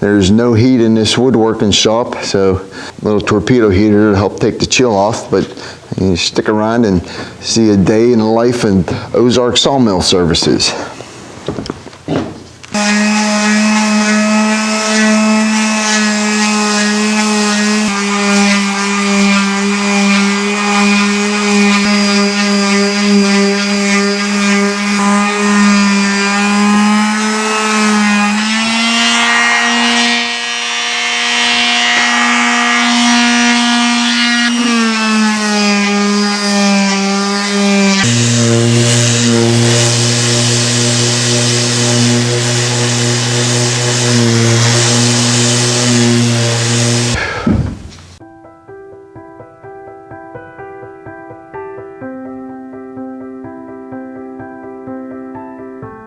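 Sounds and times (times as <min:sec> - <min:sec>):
woodworking machine humming: 0:10.6 - 0:48.2
cutting hiss: 0:37.9 - 0:48.2.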